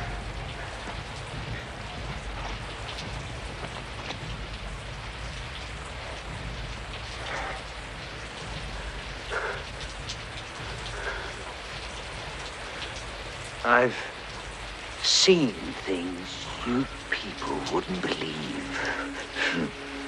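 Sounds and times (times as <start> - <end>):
low rumble: 0.0 - 15.0
heavy rain splashing: 0.0 - 20.0.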